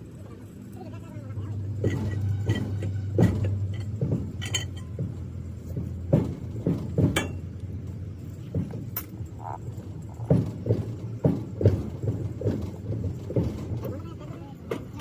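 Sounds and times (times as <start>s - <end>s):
steady low hum: 0.0s - 15.0s
metal tools clinking: 1.8s - 5.0s.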